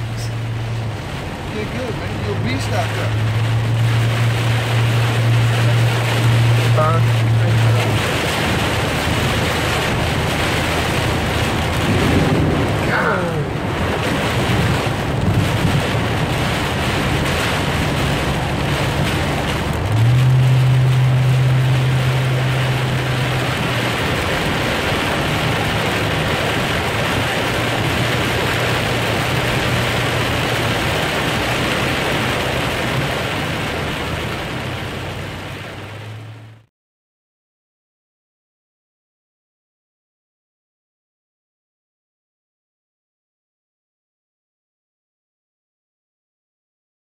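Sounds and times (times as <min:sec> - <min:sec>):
heavy rain on vehicle windshield: 0:00.0 - 0:36.7
low vehicle hum: 0:00.0 - 0:36.7.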